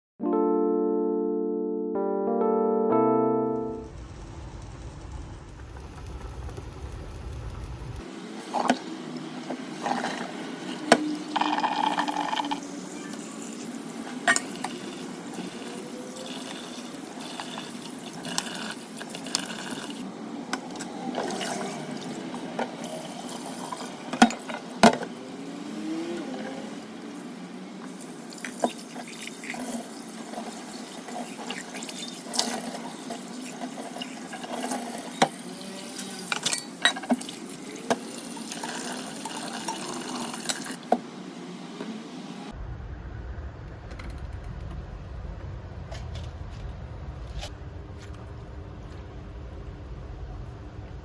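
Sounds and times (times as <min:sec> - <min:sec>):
low hum: 0:03.4 - 0:08.2, 0:42.4 - 0:51.0
water running into a vessel: 0:03.9 - 0:20.1, 0:26.8 - 0:42.1
dishes and utensils clinking: 0:11.4 - 0:15.2, 0:36.0 - 0:38.1.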